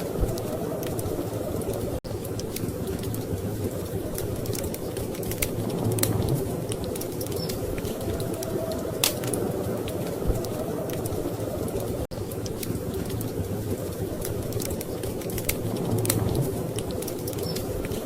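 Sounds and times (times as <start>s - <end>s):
low rumble of storm wind: 0.0s - 18.0s
wood fire crackling: 0.0s - 18.0s
sharp pops of burning wood: 0.2s - 9.4s, 12.1s - 18.0s.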